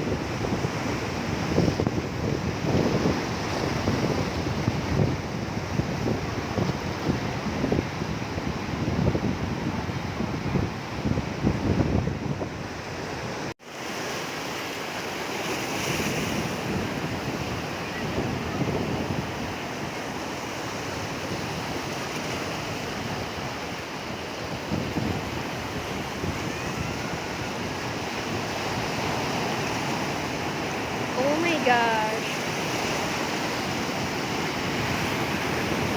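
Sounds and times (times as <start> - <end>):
wind buffeting microphone: 0.0 - 13.5, 15.9 - 35.9
sea waves washing on shore: 12.4 - 35.9.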